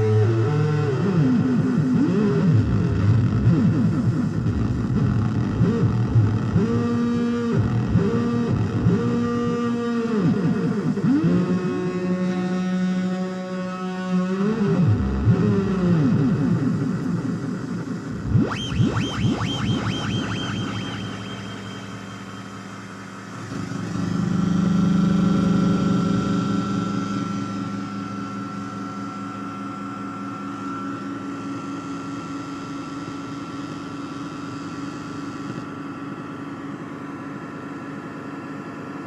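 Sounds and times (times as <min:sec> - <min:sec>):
synthesizer drone with echo: 0:00.0 - 0:39.0.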